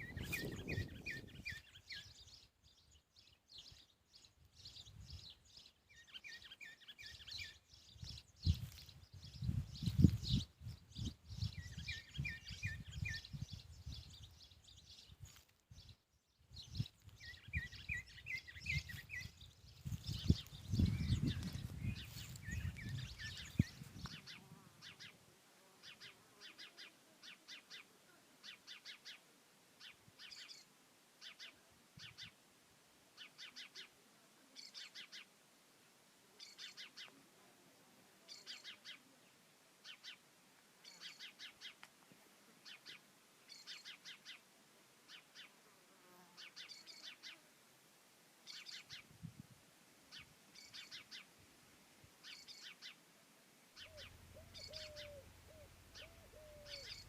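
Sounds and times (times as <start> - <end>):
small bird chirping: 0.0 - 16.0, 16.6 - 25.2, 29.8 - 32.4, 33.2 - 33.9, 34.6 - 35.3, 38.3 - 39.1, 40.8 - 41.9, 42.6 - 44.4, 46.4 - 47.4, 48.5 - 49.1, 50.1 - 51.3, 52.2 - 53.0, 53.8 - 57.0.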